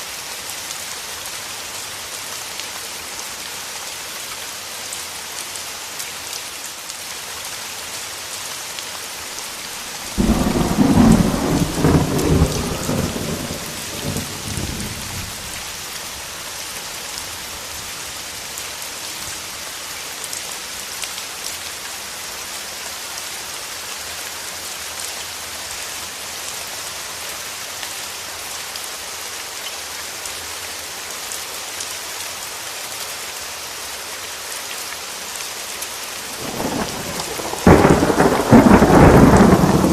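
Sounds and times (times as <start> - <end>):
steady rain falling: 0.0 - 39.9
thunderclap rumbling: 10.1 - 15.5, 36.4 - 39.9.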